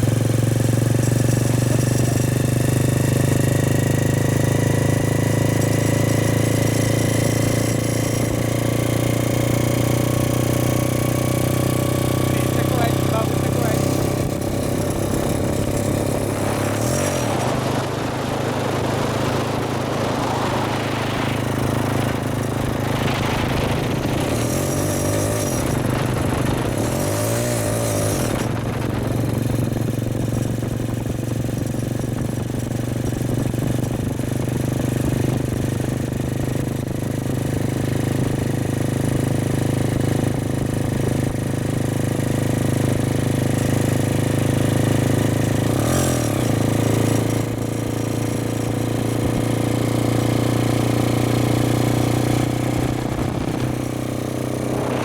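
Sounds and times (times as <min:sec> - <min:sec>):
motorcycle engine running: 0:00.0 - 0:55.0
road noise: 0:00.0 - 0:55.0
rushing wind: 0:06.8 - 0:37.1, 0:49.2 - 0:55.0.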